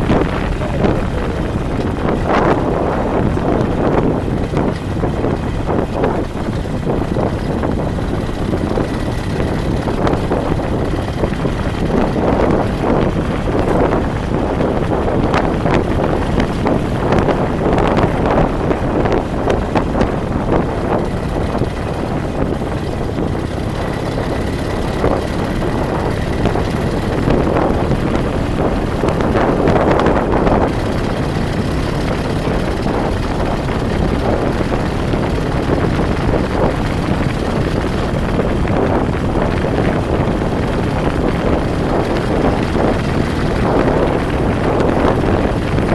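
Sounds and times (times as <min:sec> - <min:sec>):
vehicle rumble on road: 0:00.0 - 0:45.9
wind buffeting microphone: 0:00.0 - 0:45.9.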